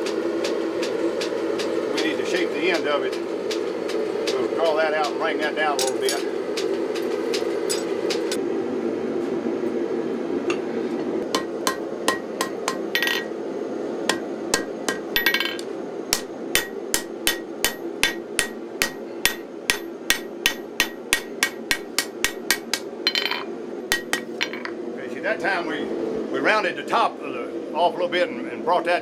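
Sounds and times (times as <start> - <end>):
hammer ringing on anvil: 11.3 - 13.3, 14.1 - 24.7.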